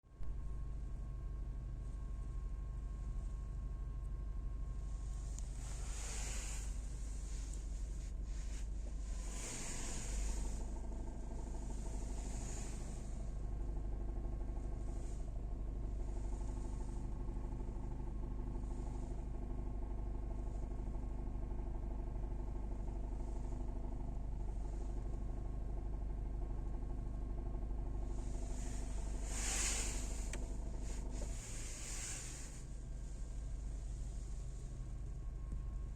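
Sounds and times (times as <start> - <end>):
car engine idling with knocking: 0.2 - 35.9
rustling noises: 28.2 - 32.6.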